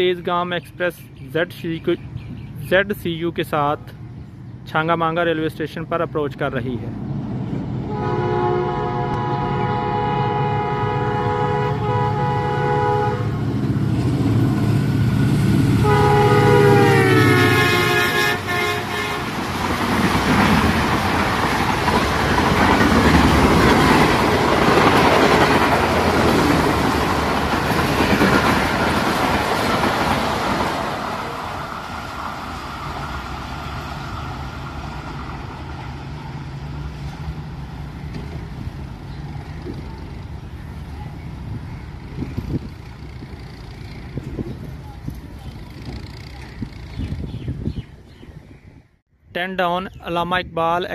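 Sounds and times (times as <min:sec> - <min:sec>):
train horn blast: 0:07.9 - 0:13.6, 0:15.7 - 0:19.4
coaches clattering on rails: 0:19.4 - 0:33.4.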